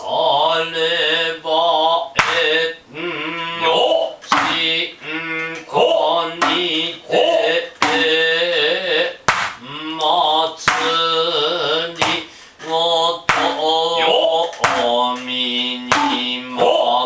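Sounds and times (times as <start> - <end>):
person chanting drawn-out syllables: 0.0 - 17.0.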